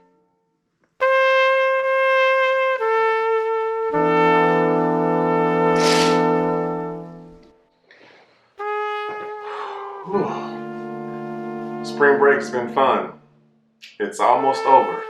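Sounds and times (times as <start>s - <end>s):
brass held notes: 1.0s - 7.0s, 8.6s - 13.3s, 14.2s - 15.0s.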